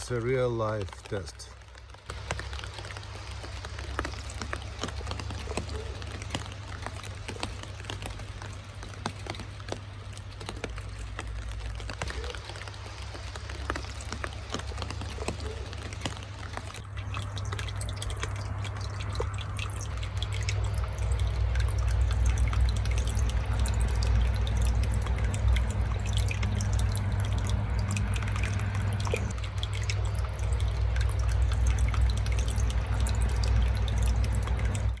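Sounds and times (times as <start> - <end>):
water dripping through rain gutter: 0.0 - 35.0
steady low rumble: 9.8 - 35.0.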